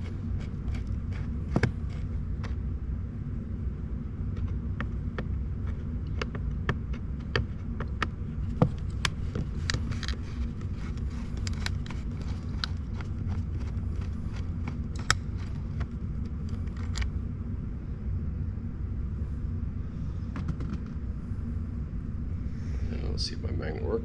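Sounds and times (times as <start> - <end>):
steady low hum: 0.0 - 24.0
screwdriver clicking on plastic trim: 10.8 - 15.6.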